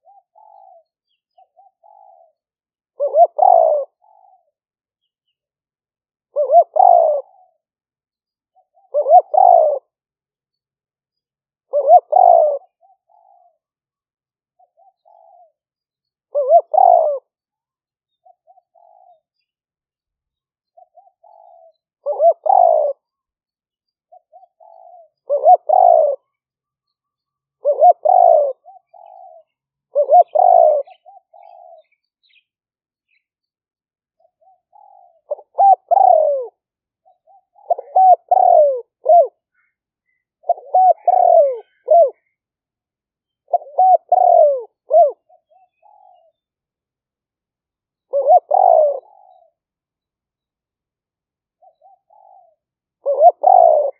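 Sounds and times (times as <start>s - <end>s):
dove cooing: 0.0s - 4.6s, 6.3s - 7.7s, 8.5s - 10.0s, 11.6s - 13.7s, 14.6s - 15.6s, 16.3s - 17.4s, 18.2s - 19.4s, 20.7s - 23.2s, 24.1s - 26.4s, 27.6s - 32.4s, 34.2s - 42.4s, 43.4s - 46.4s, 48.0s - 49.6s, 51.6s - 53.9s.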